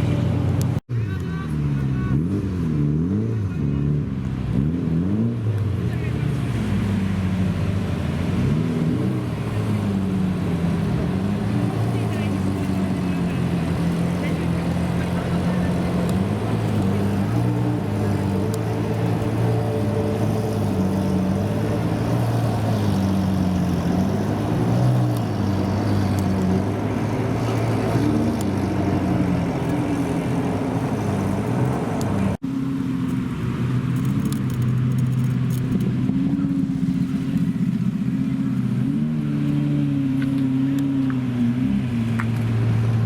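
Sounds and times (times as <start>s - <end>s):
car engines running at low revs: 0.0s - 43.0s.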